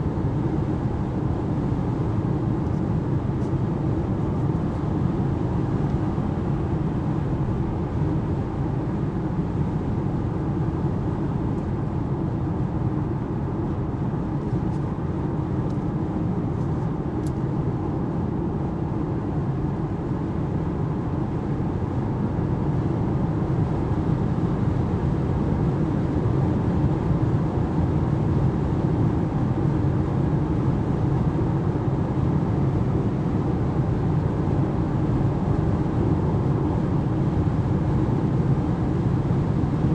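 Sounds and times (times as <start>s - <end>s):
tyre roar and wind in car cabin: 0.0s - 39.9s.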